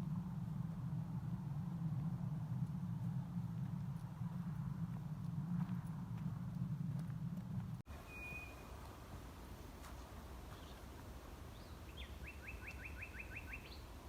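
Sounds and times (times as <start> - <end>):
low rumble: 0.0 - 7.8
nightingale singing: 7.9 - 8.8, 11.5 - 14.0.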